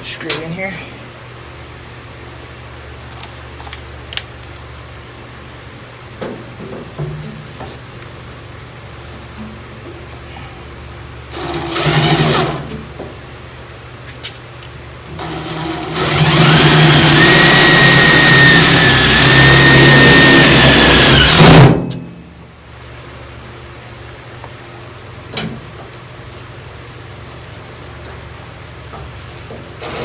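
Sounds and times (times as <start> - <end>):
electric drill whining: 11.3 - 12.7, 15.2 - 21.8, 29.8 - 30.0.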